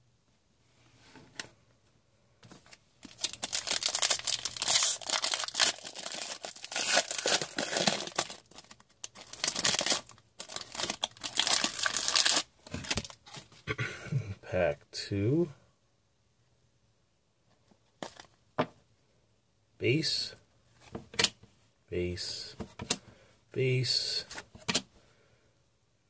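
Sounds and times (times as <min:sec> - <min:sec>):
foil wrapper tearing and crinkling: 0:03.0 - 0:13.2.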